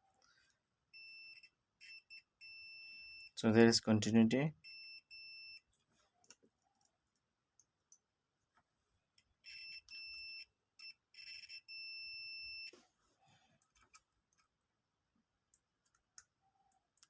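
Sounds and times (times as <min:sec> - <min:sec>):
multimeter beeping: 0:00.9 - 0:03.4, 0:04.6 - 0:05.7, 0:09.4 - 0:12.8.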